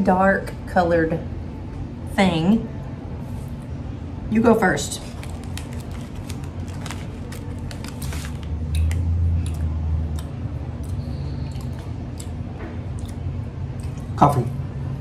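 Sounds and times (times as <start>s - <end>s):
steady low hum: 0.0s - 15.0s
people chewing cookie: 5.0s - 14.5s.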